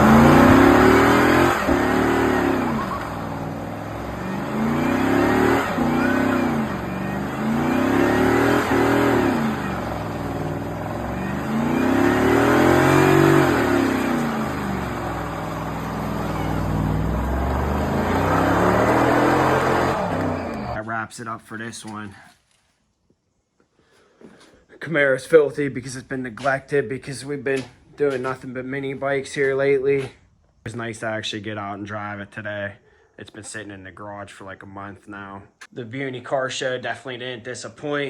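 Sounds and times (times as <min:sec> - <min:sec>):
car engine revving: 0:00.0 - 0:20.8.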